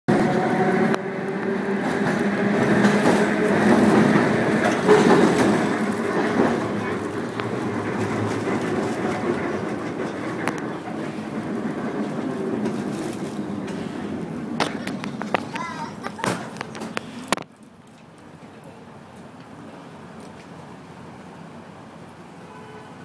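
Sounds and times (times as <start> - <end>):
steel wheels rumbling on rails: 0.1 - 17.4
wheels clicking over rail joints: 0.2 - 19.6.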